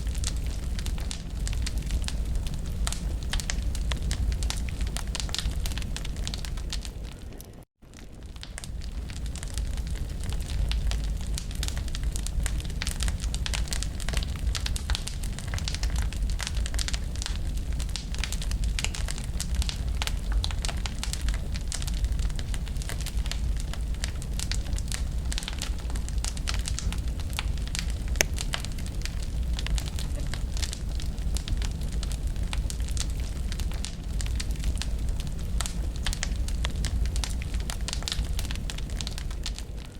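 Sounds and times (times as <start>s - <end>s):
low steady rumble: 0.0s - 39.9s
wood fire crackling and popping: 0.0s - 39.9s.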